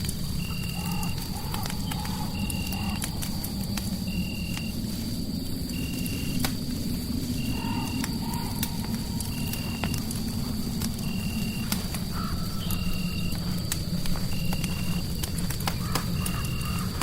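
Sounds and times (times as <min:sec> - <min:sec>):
fireplace crackling and popping: 0:00.0 - 0:17.0
steady low rumbling: 0:00.0 - 0:17.0.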